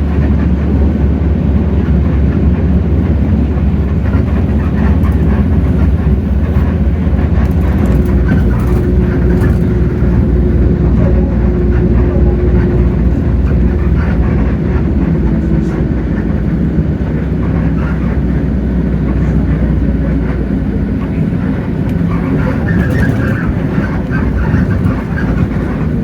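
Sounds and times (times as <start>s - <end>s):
bus diesel engine rumble: 0.0s - 26.0s
steady whine: 0.0s - 26.0s.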